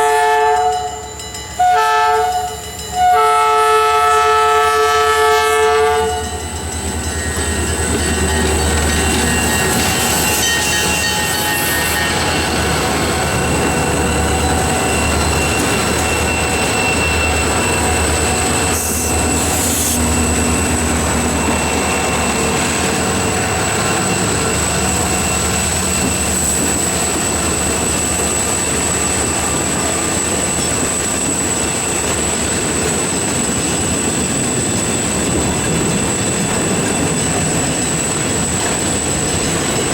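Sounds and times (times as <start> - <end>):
train cars rumbling on rails: 0.0 - 39.9
high-pitched wheel squeal: 7.1 - 29.2.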